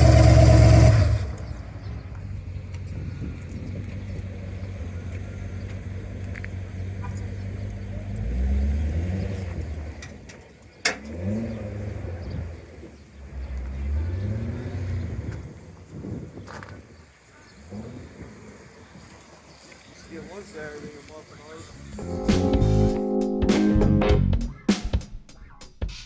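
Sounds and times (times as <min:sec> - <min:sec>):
cars accelerating: 0:00.0 - 0:10.3, 0:10.9 - 0:15.6
car engine rumble: 0:00.0 - 0:15.9.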